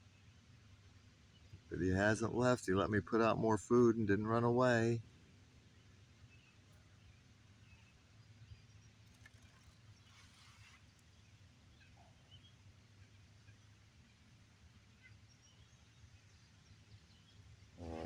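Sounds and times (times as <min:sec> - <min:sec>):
low steady hum: 0:00.0 - 0:10.1
faint bird chirps: 0:05.7 - 0:18.0
soft rustle: 0:09.0 - 0:11.4.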